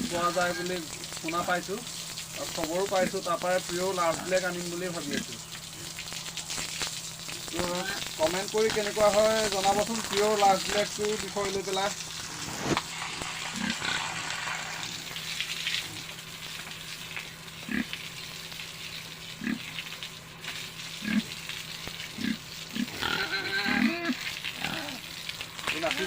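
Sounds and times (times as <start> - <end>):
pigs grunting: 0.0 - 1.0, 2.4 - 6.0, 7.4 - 11.6, 13.4 - 15.0, 17.6 - 18.0, 19.4 - 19.8, 21.0 - 21.4, 22.0 - 26.0
steady hiss: 0.0 - 22.9, 23.6 - 26.0.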